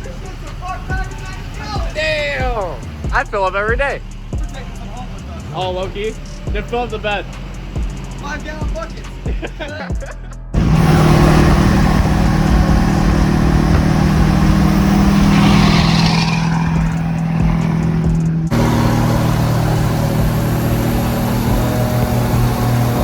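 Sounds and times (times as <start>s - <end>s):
road noise: 0.0s - 23.0s
truck engine drone: 0.0s - 23.0s.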